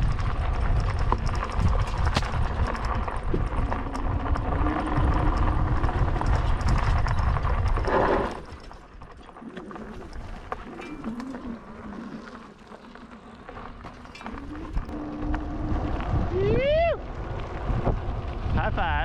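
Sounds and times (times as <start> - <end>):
wind on microphone: 0.0 - 8.7, 14.2 - 19.0
bike rattling over rough ground: 0.0 - 19.0.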